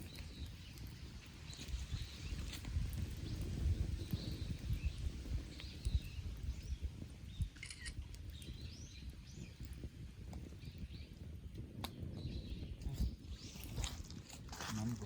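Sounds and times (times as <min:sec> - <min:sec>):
small birds chirping: 0:00.0 - 0:15.0
sharp clicks: 0:07.6 - 0:08.5.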